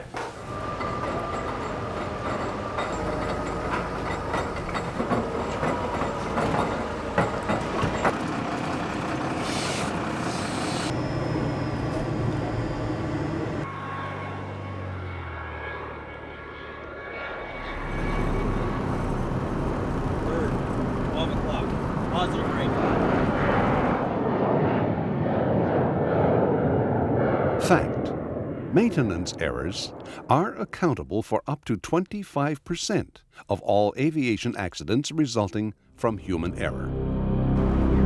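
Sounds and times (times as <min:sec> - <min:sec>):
steady mechanical rumble: 0:00.0 - 0:30.9
scattered clicks and knocks: 0:00.8 - 0:08.3
low hum: 0:10.4 - 0:31.2, 0:35.7 - 0:38.0.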